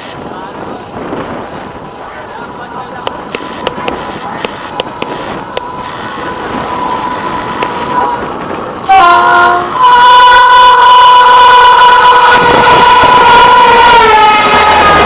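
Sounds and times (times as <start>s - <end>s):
train rumble: 0.0s - 15.0s
locomotive air horn blasts: 5.1s - 15.0s.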